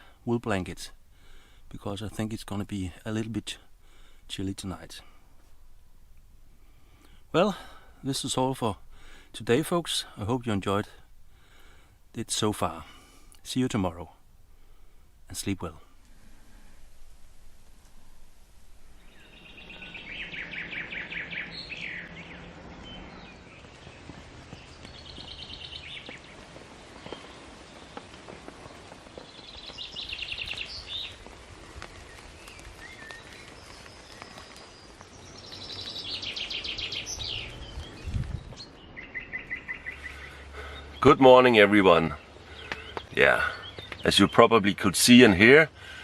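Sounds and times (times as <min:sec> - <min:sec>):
rain hissing: 0:14.2 - 0:44.4
songbird trilling: 0:19.0 - 0:23.9, 0:32.8 - 0:44.4.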